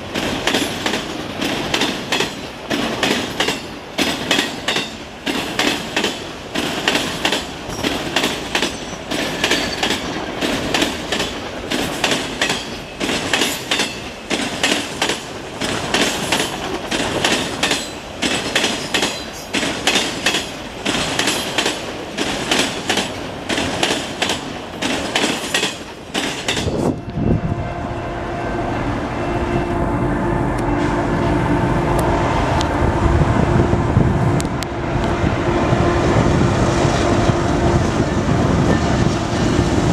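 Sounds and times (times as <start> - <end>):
train wheels clattering over crossing: 0.0 - 27.2
train humming drone and rumble: 0.0 - 39.9.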